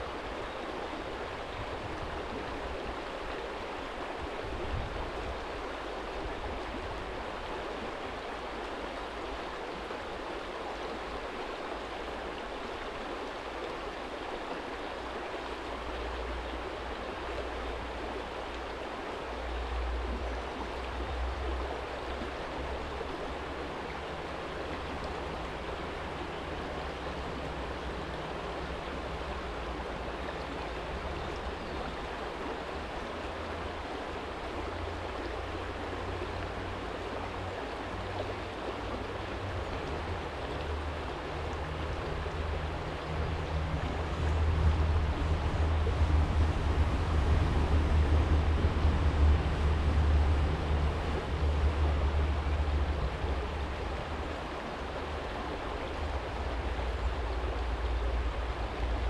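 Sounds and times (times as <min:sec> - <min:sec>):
stream flowing over stones: 0:00.0 - 0:59.0
low rumble: 0:40.7 - 0:54.4.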